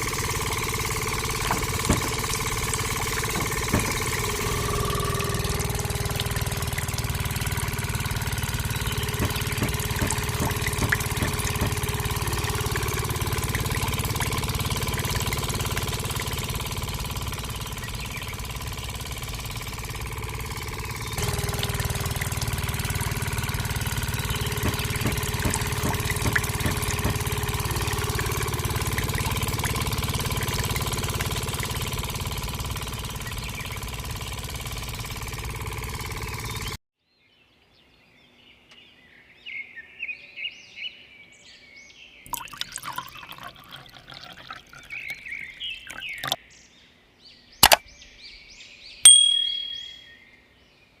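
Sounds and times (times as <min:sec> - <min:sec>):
engine idling: 0:00.0 - 0:36.8.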